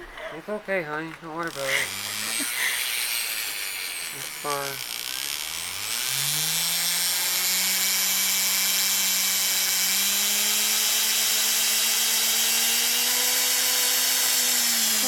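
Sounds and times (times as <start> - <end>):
power tool motor whirring: 1.4 - 15.0.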